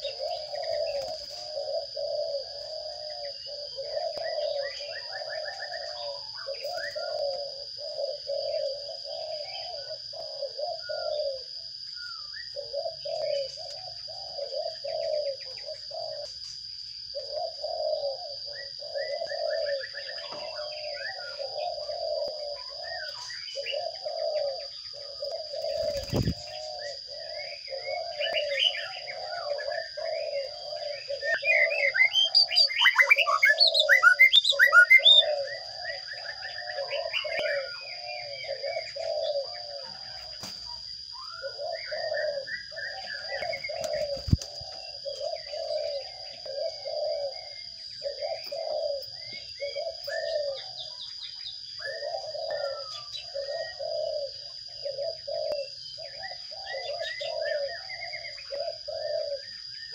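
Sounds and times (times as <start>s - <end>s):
nestlings begging chirps: 18.6s - 47.1s.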